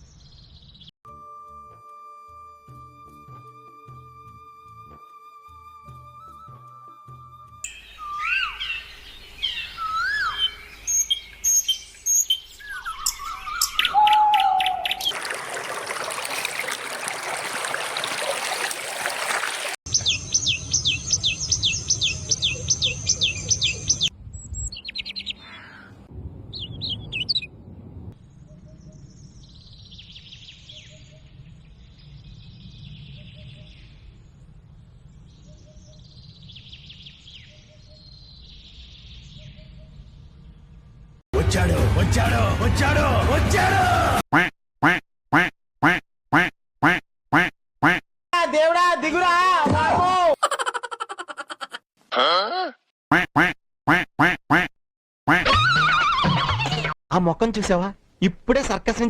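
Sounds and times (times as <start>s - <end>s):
whistled bird calls: 7.6s - 15.2s
soft bird chirps: 28.2s - 40.6s.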